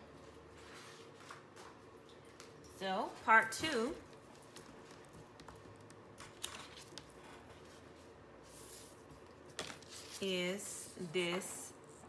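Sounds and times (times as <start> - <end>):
paper rustling: 4.2 - 10.4.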